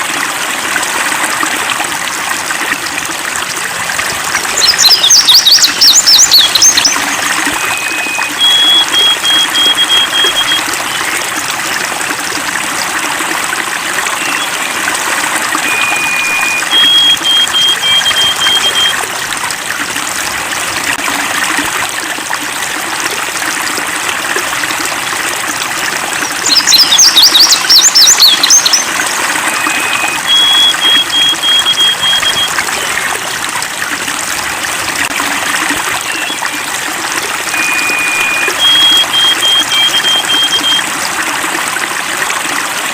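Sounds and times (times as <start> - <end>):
stream flowing: 0.0 - 42.9
songbirds calling: 4.4 - 11.2, 26.2 - 32.5, 36.0 - 36.7, 37.5 - 40.8.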